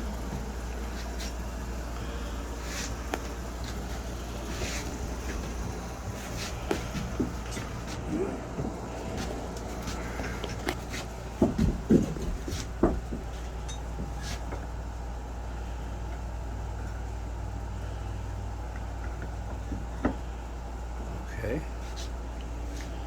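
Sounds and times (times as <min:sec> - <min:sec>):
steady low hum: 0:00.0 - 0:23.0
knocks: 0:11.4 - 0:13.3.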